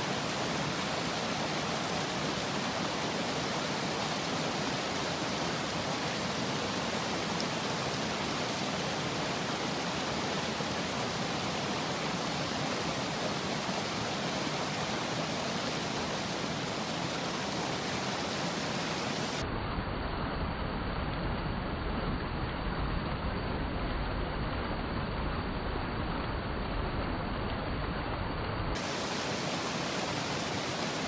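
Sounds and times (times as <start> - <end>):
stream water rushing: 0.0 - 19.4, 28.8 - 31.0
dull noise with low rumble: 19.4 - 29.3.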